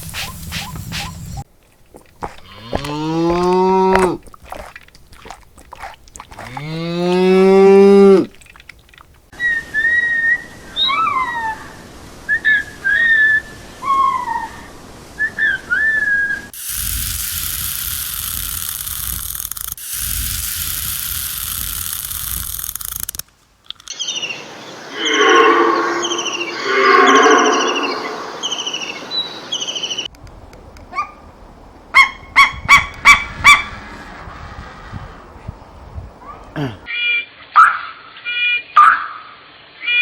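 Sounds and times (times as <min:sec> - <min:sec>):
cow mooing: 0:02.4 - 0:04.2, 0:06.4 - 0:08.3, 0:24.9 - 0:28.4
whistled chirps and pitch glides: 0:09.4 - 0:11.4, 0:24.0 - 0:30.1
animal pulsing call: 0:24.9 - 0:28.9.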